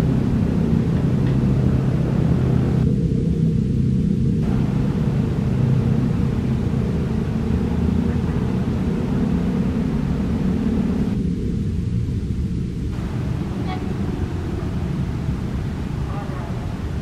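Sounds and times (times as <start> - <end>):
electric train rumble: 0.0 - 17.0
faint hiss: 4.4 - 17.0.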